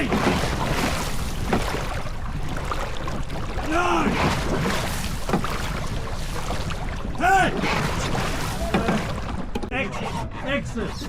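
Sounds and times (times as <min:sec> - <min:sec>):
wind and water noise: 0:00.0 - 0:11.0
person shouting: 0:03.7 - 0:04.2.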